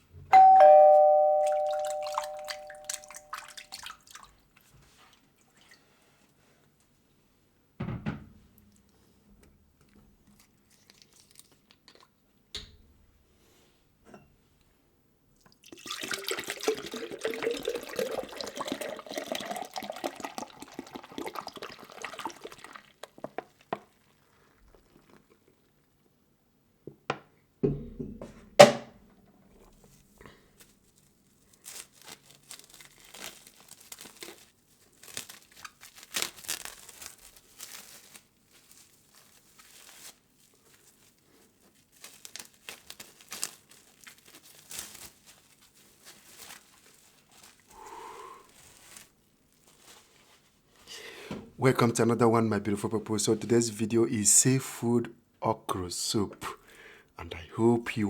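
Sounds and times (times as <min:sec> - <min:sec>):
food packaging crinkling: 0:09.9 - 0:12.1, 0:29.7 - 0:51.0
liquid pouring into container: 0:15.5 - 0:25.4.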